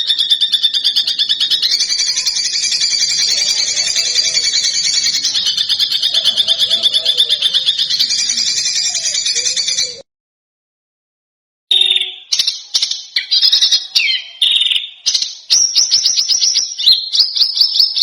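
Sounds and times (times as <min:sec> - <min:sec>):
songbird rattling trill: 0:00.0 - 0:10.0.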